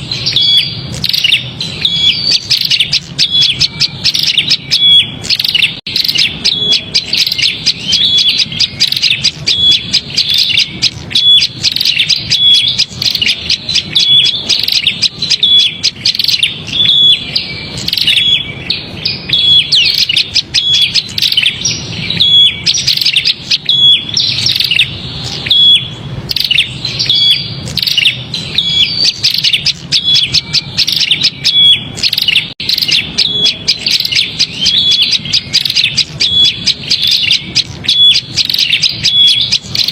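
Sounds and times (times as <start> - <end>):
bird rapid chirping calls: 0.0 - 39.9.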